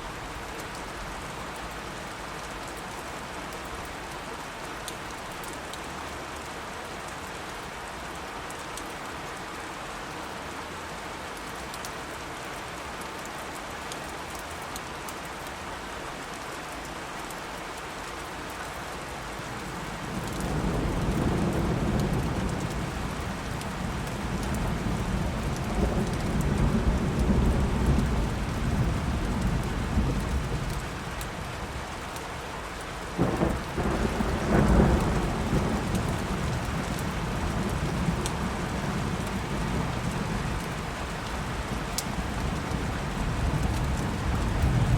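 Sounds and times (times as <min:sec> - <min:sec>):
steady rain: 0:00.0 - 0:44.9
thunder rumbling: 0:20.0 - 0:31.1, 0:33.2 - 0:44.9.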